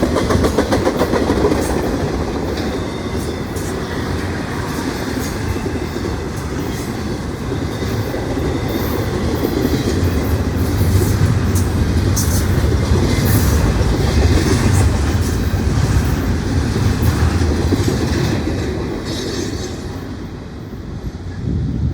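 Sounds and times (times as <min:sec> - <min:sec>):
wheels clicking over rail joints: 0:00.0 - 0:20.0
freight train rumbling past: 0:00.0 - 0:21.9.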